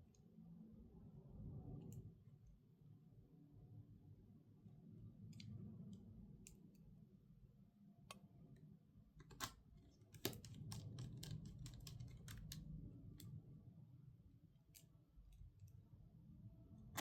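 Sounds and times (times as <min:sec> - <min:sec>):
laptop keys clicking: 0:10.2 - 0:12.7.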